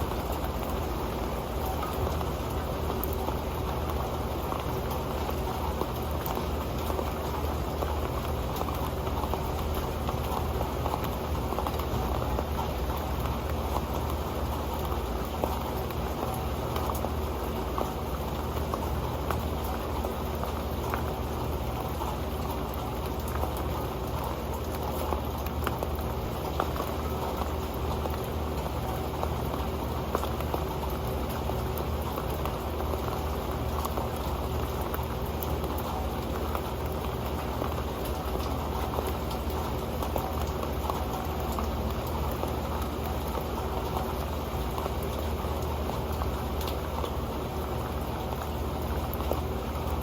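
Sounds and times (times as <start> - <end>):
rain on a metal pan: 0.0 - 50.0.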